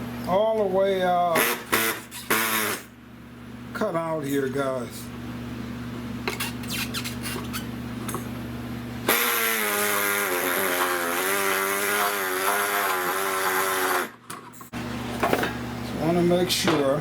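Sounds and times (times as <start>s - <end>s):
rotary tool cutting plastic: 9.1s - 14.2s.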